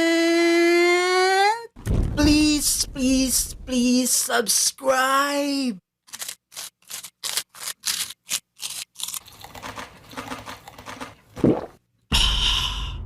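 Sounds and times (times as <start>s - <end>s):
chip crunching and chewing: 6.1s - 11.2s.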